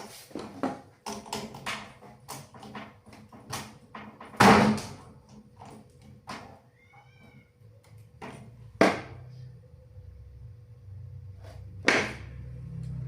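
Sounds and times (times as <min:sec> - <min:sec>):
high-pitched meow-like call: 0:06.7 - 0:07.5.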